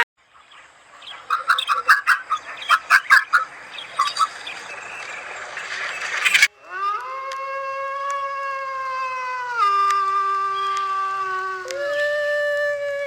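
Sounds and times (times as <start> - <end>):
bird calling in sharp notes: 0.0 - 7.0.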